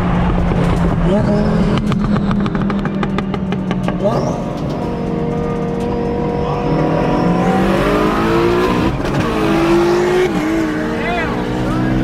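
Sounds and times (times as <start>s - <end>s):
car engine at full throttle: 0.0s - 12.0s.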